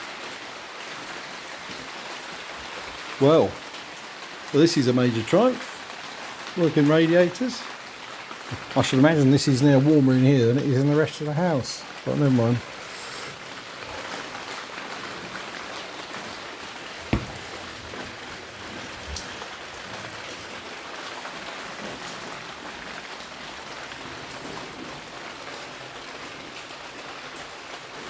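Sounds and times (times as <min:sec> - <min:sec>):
rain on tarpaulin: 0:00.0 - 0:28.0
sharp knock: 0:17.1 - 0:17.6.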